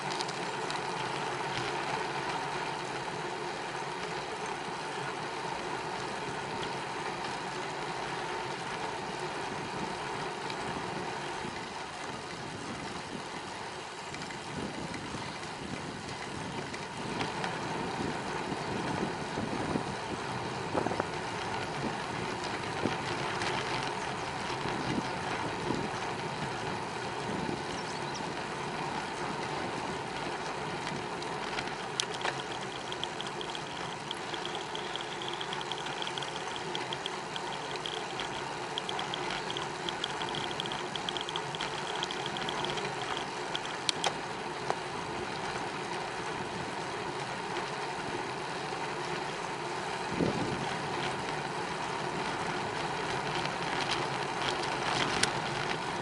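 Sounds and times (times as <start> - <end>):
small clicks and knocks: 0.0 - 2.4, 30.8 - 44.8, 52.8 - 56.0
bicycle tyre noise: 0.0 - 56.0
fast even ticking: 31.6 - 44.1.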